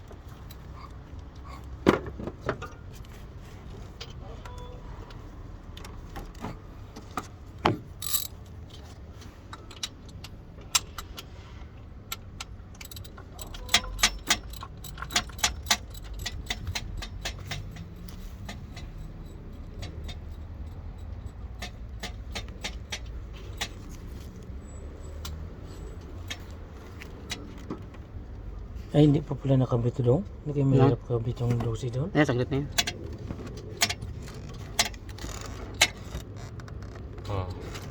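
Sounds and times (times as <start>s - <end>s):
metal tools clinking on engine parts: 7.8s - 11.4s, 12.0s - 27.7s.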